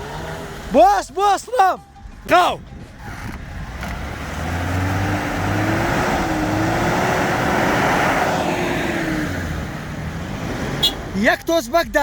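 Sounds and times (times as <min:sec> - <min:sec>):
off-road vehicle engine running: 0:00.0 - 0:12.0.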